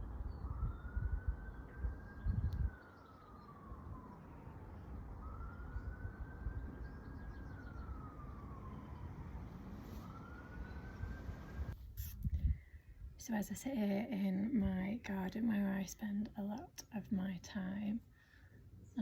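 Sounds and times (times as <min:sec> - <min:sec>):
distant siren wailing: 0:00.0 - 0:11.8.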